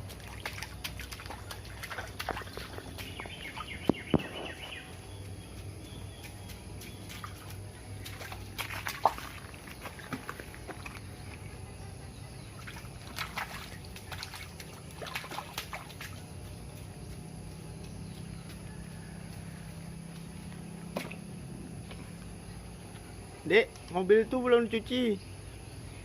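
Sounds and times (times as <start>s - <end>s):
water splashing and dribbling: 0.0s - 5.0s, 6.1s - 11.5s, 12.4s - 16.9s, 20.9s - 21.3s.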